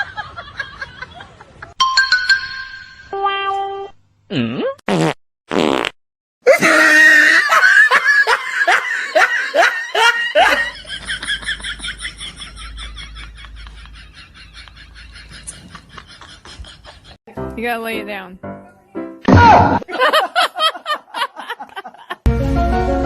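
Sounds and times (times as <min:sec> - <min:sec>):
fart-like noises: 0:04.3 - 0:06.0
person laughing: 0:06.5 - 0:17.2, 0:19.8 - 0:22.3.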